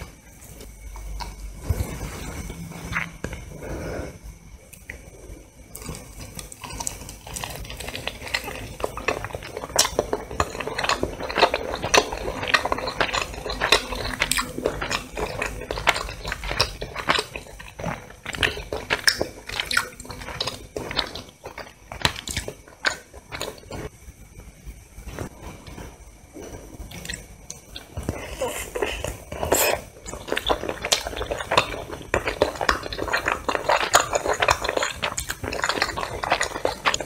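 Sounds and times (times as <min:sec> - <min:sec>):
biting and chewing: 0:05.7 - 0:23.9, 0:26.9 - 0:37.0.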